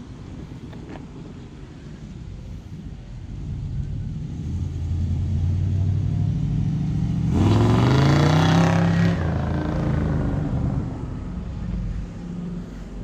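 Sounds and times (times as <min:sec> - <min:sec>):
car engine revving: 0:04.4 - 0:11.2.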